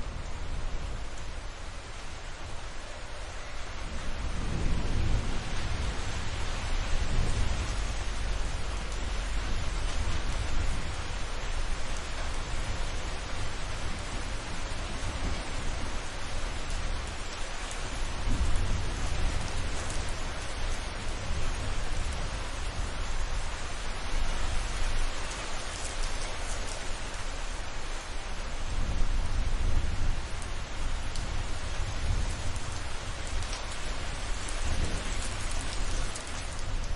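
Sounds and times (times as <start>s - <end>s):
heavy rain: 0.0s - 36.9s
low thunder rumble: 3.7s - 27.2s, 28.3s - 36.9s.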